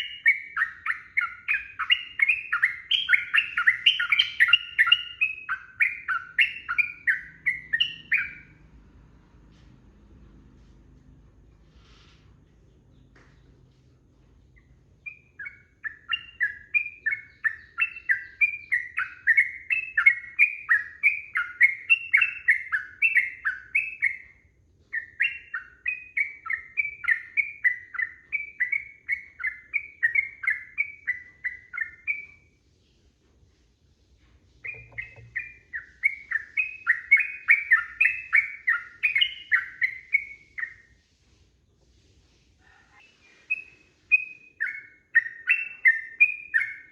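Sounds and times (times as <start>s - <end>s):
bulbul singing rapid chirps: 0.0s - 8.6s, 34.6s - 40.8s.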